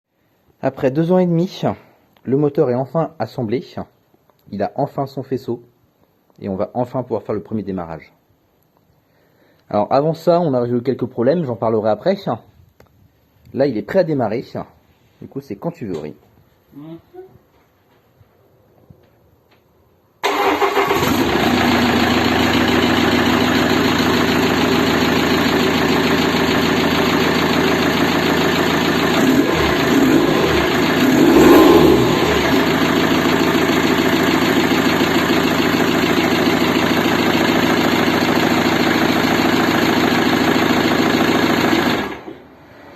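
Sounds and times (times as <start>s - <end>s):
diesel engine starting and idling: 20.2s - 42.9s
engine revving: 27.0s - 36.7s.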